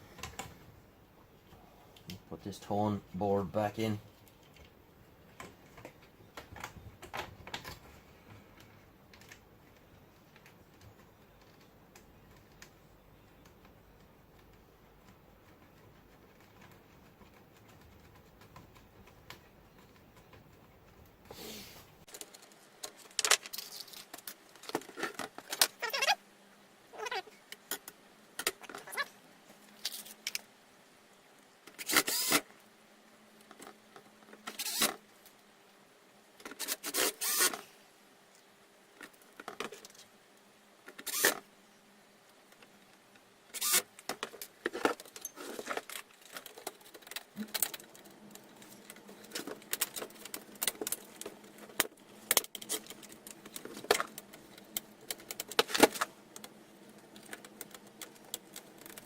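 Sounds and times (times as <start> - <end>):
metal parts clinking and rattling: 23.2 - 24.4.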